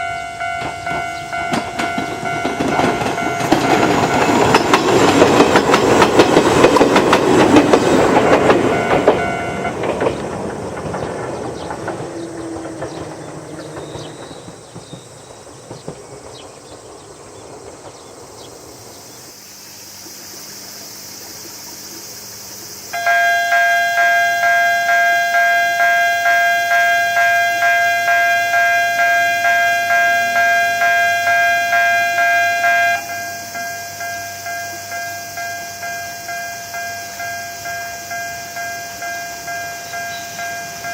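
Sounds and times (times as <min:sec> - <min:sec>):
level crossing warning bell: 0:00.0 - 0:10.2, 0:22.9 - 0:40.9
electric train wheel clatter: 0:00.0 - 0:40.9.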